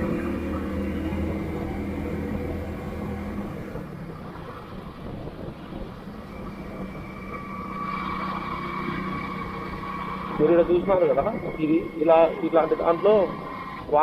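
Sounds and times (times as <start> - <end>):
motorcycle engine running: 0.0 - 14.0
road noise: 0.0 - 14.0
steady higher whine: 0.0 - 14.0.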